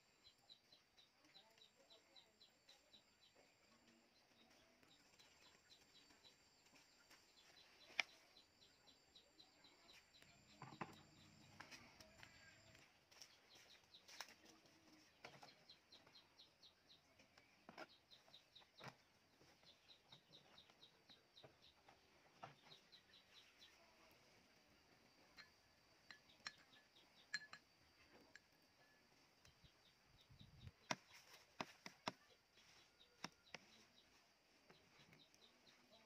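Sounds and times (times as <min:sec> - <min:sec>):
faint bird chirping: 0:00.0 - 0:36.0
rural ambience: 0:00.0 - 0:36.0.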